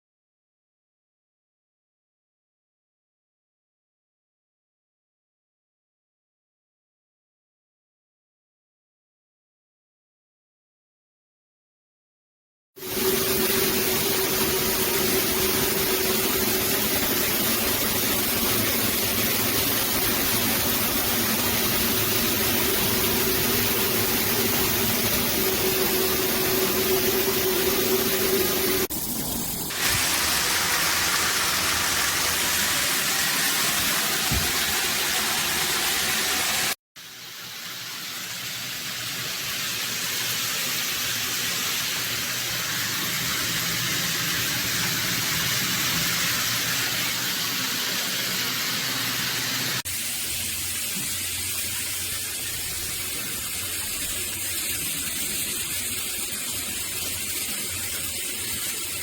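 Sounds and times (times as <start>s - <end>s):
shower water spraying: 12.8s - 59.0s.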